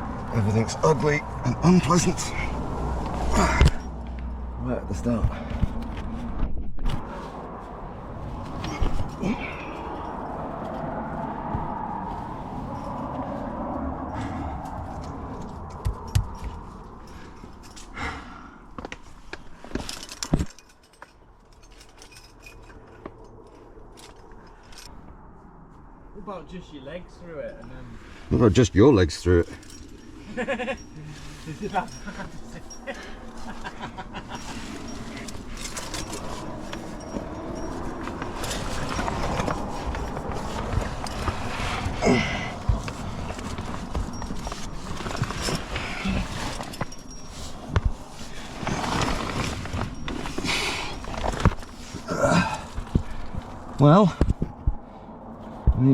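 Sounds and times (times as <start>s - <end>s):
metal climbing gear clinking: 0.0s - 6.2s, 8.4s - 11.2s, 12.6s - 25.1s, 27.3s - 54.6s
gear scraping and knocking on rock: 34.3s - 54.7s.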